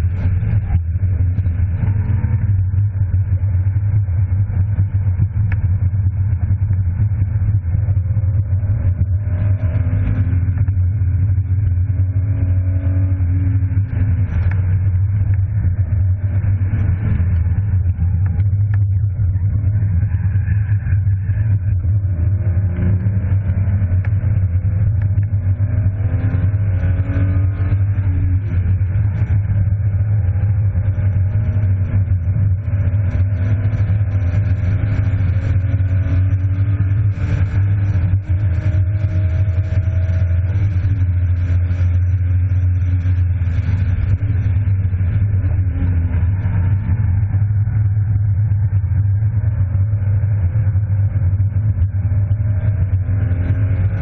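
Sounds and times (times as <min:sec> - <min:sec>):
heavy low drone: 0:00.0 - 0:54.0
car engine revving from inside cabin: 0:22.2 - 0:47.4.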